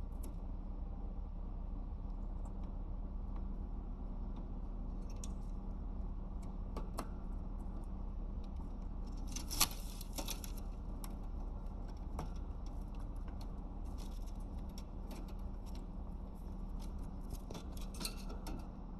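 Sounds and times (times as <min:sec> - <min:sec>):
parrot gnawing wood: 0:07.6 - 0:18.5.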